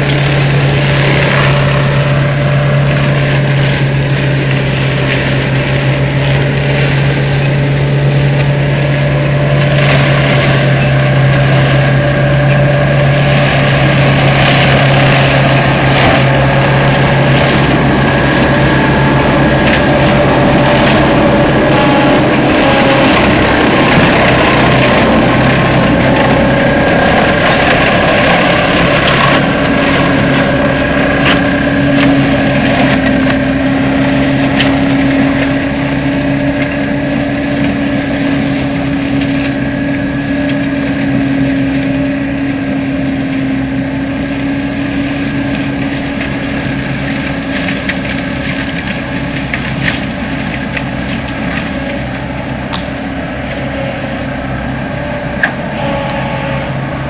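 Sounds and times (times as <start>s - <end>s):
wood cracking: 0.0s - 40.8s, 42.9s - 53.7s
diesel engine running hard: 0.0s - 57.0s
mulcher rotor hum: 0.0s - 57.0s.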